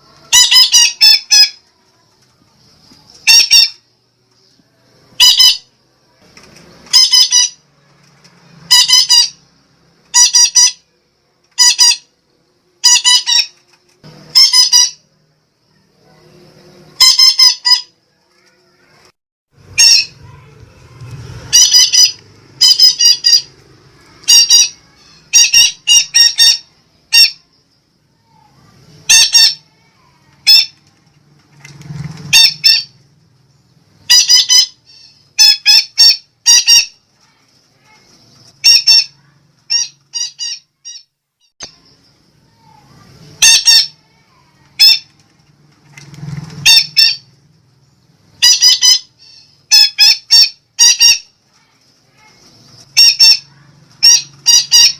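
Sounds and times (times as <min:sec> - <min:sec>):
parakeet squawking: 0:00.2 - 0:01.6, 0:03.2 - 0:03.8, 0:05.2 - 0:05.7, 0:06.9 - 0:07.6, 0:08.7 - 0:09.4, 0:10.1 - 0:10.9, 0:11.5 - 0:12.1, 0:12.8 - 0:13.6, 0:14.3 - 0:15.1, 0:17.0 - 0:17.9, 0:19.6 - 0:20.8, 0:21.4 - 0:27.5, 0:29.0 - 0:30.8, 0:32.3 - 0:33.0, 0:34.0 - 0:37.0, 0:38.6 - 0:41.8, 0:43.4 - 0:45.2, 0:46.6 - 0:47.3, 0:48.4 - 0:51.3, 0:52.1 - 0:54.9.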